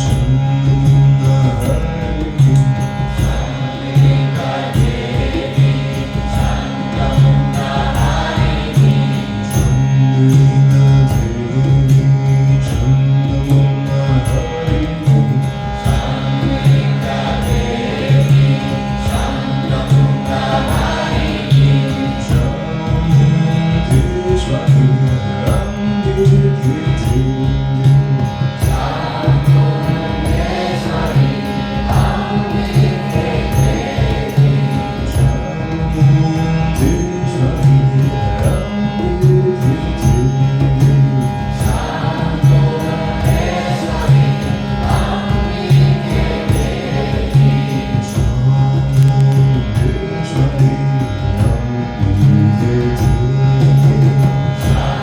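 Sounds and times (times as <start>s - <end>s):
steady held drone: 0.0s - 55.0s
light regular beat: 12.9s - 55.0s.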